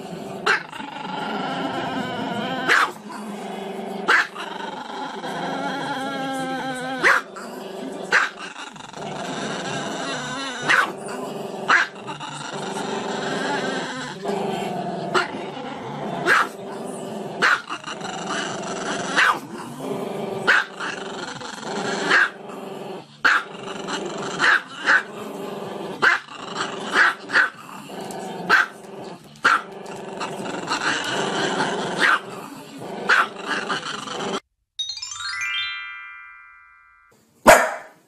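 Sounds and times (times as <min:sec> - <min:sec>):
dog growling: 0:00.0 - 0:34.5
dog barking: 0:02.7 - 0:03.0, 0:04.1 - 0:04.4, 0:07.0 - 0:07.3, 0:08.1 - 0:08.4, 0:10.6 - 0:10.9, 0:11.7 - 0:11.9, 0:16.2 - 0:16.6, 0:17.4 - 0:17.7, 0:19.2 - 0:19.4, 0:20.5 - 0:20.7, 0:22.1 - 0:22.4, 0:23.2 - 0:23.5, 0:26.0 - 0:26.2, 0:26.9 - 0:27.5, 0:28.5 - 0:28.8, 0:32.0 - 0:32.2, 0:33.1 - 0:33.3, 0:37.5 - 0:38.0.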